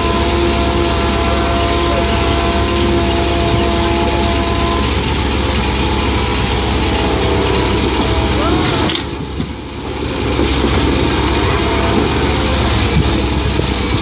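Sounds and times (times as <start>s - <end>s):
excavator diesel engine running: 0.0s - 14.0s
steady whine: 0.0s - 14.0s.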